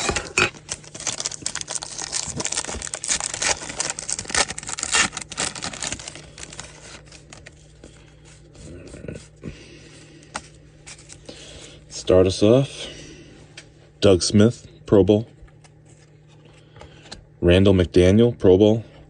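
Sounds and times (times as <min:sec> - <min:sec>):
foil wrapper tearing and crinkling: 0:00.0 - 0:07.8
cards rustling: 0:00.0 - 0:09.3.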